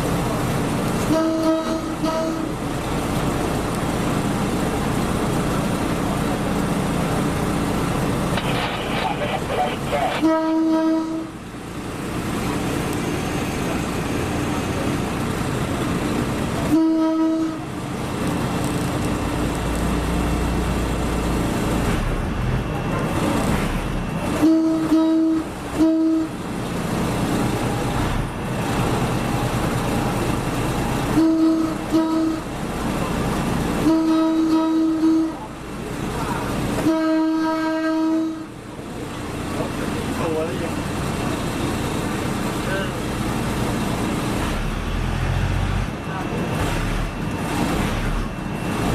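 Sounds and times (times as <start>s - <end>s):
moving train rumbling: 0.0s - 48.9s
train horn tooting: 1.0s - 2.6s, 10.2s - 11.4s, 16.6s - 17.7s, 24.4s - 26.4s, 31.1s - 32.5s, 33.8s - 35.5s, 36.8s - 38.5s.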